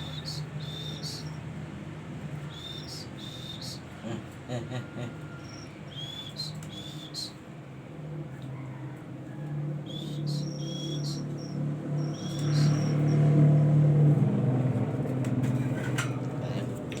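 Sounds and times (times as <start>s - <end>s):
small bird chirping and whistling: 0.0s - 1.4s, 2.5s - 3.8s, 5.4s - 7.4s, 9.9s - 13.2s
low motor-like hum: 0.0s - 17.0s.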